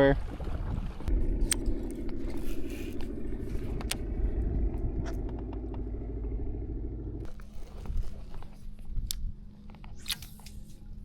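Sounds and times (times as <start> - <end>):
electric boat motor humming: 1.1 - 9.3.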